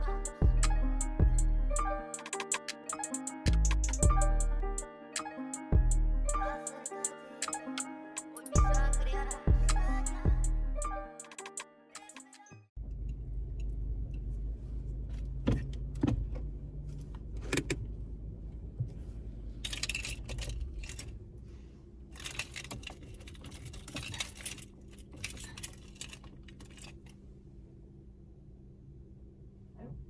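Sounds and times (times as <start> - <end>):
low steady rumble: 0.0 - 2.0, 3.5 - 4.8, 5.8 - 6.6, 8.6 - 11.1, 12.8 - 23.9
sharp clicks: 2.1 - 4.0
keys jangling: 19.6 - 21.1, 22.2 - 27.1.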